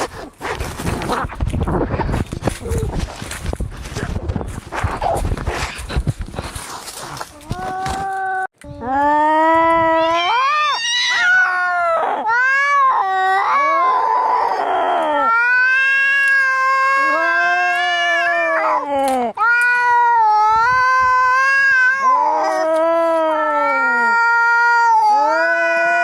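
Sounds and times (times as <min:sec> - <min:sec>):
cats yowling: 0:09.8 - 0:18.8, 0:19.4 - 0:26.0.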